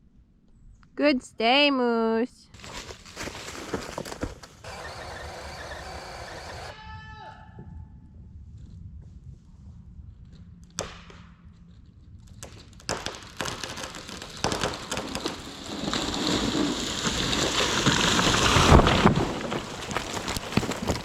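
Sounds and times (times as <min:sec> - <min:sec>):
leaves and branches rustling: 0:02.5 - 0:05.4, 0:12.4 - 0:21.0.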